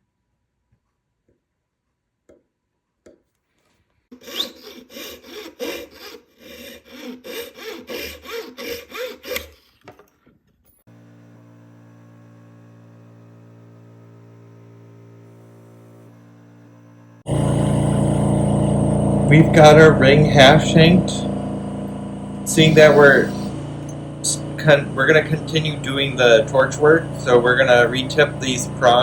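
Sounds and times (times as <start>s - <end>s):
hand tool rasping metal: 4.1s - 10.1s
steady machine hum: 10.9s - 29.0s.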